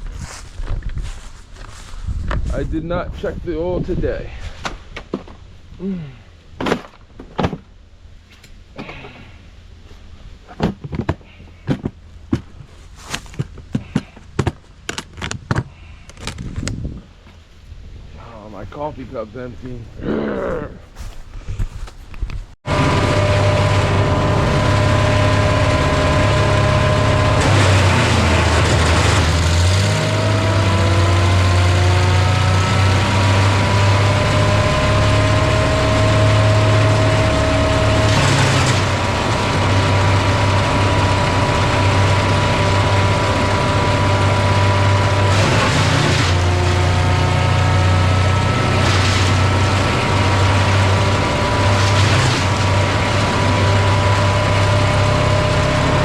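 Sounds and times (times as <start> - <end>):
woodchipper running: 22.6 - 56.0.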